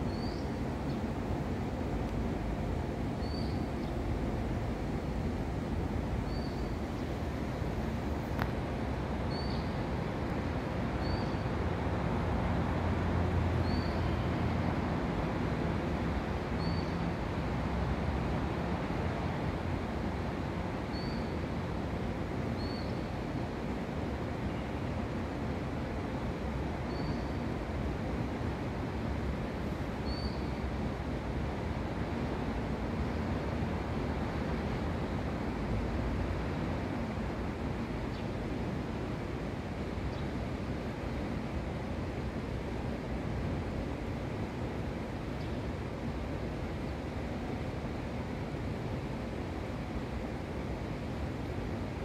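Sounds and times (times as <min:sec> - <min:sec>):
low city rumble: 0:00.0 - 0:52.0
small bird chirping: 0:03.2 - 0:03.9.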